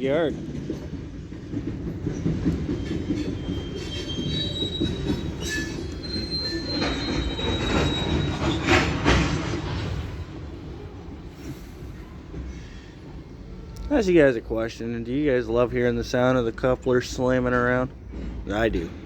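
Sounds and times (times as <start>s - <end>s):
low rumble of freight cars: 0.0s - 19.0s
train wheels squealing: 0.1s - 14.1s.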